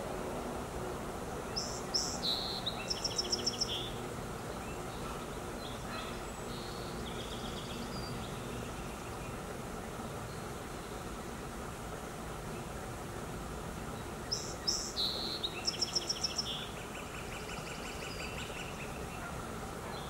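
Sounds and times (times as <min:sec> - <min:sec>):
steady low background noise: 0:00.0 - 0:20.0
bird chirps: 0:01.6 - 0:04.0.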